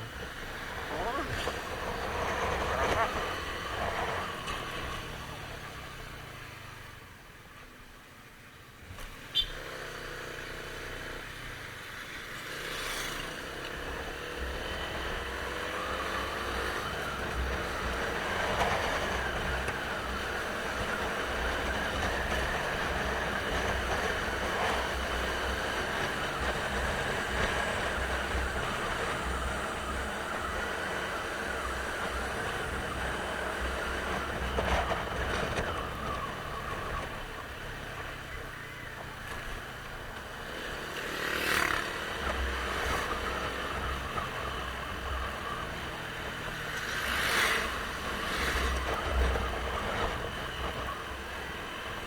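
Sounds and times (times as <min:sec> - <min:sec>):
motorcycle engine pulling away: 0:12.7 - 0:52.0
wind rumble on microphone: 0:13.9 - 0:40.3, 0:41.9 - 0:52.0.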